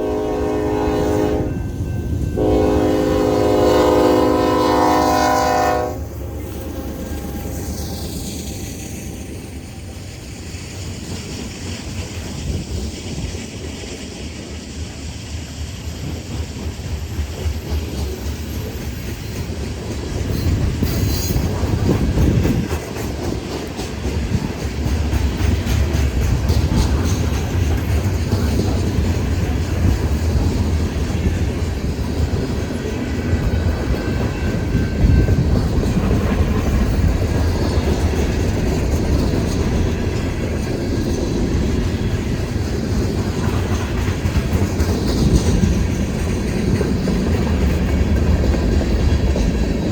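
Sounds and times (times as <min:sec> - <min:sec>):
freight train cars rolling: 0:00.0 - 0:49.9
wheels clacking over rail joints: 0:15.8 - 0:49.9.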